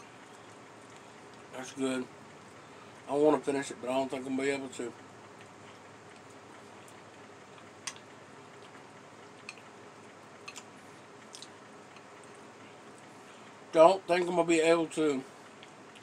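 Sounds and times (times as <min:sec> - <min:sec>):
person chewing: 0:05.4 - 0:09.7, 0:10.4 - 0:13.1, 0:15.5 - 0:16.0.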